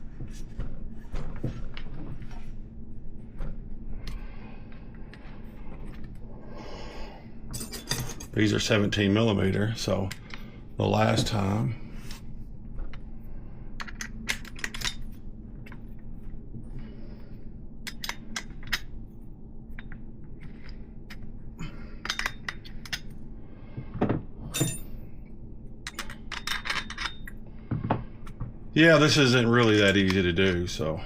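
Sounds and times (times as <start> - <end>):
wrench clinking on metal: 7.6 - 8.4, 24.5 - 25.0.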